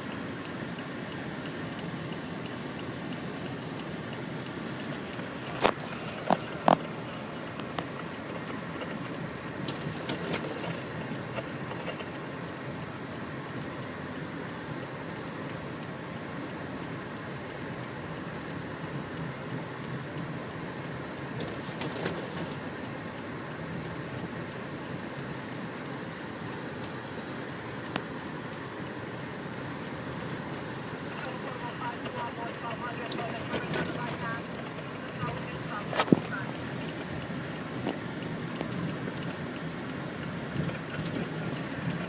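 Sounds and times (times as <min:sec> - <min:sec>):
car road and engine noise: 0:00.0 - 0:42.0
faint regular ticking: 0:00.0 - 0:42.0
clicks: 0:29.5 - 0:42.0.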